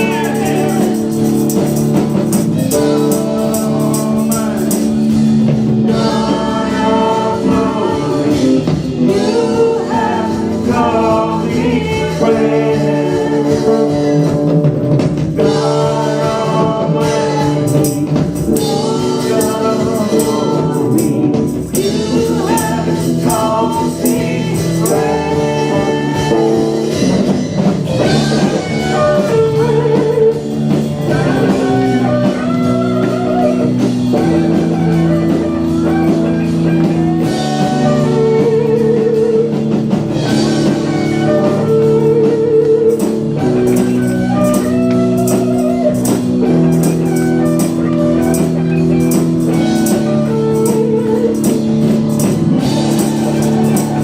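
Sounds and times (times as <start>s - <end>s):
bass guitar: 0.0s - 54.0s
drum kit cymbal beat: 0.0s - 54.0s
electric guitar lead with vibrato: 0.0s - 54.0s.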